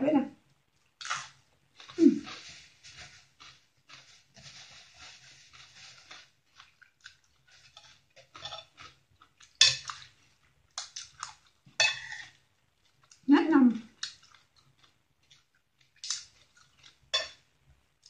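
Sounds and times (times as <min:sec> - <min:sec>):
crunchy chewing: 0:00.8 - 0:13.2, 0:14.0 - 0:17.4
cutlery clinking on plate: 0:17.2 - 0:17.4.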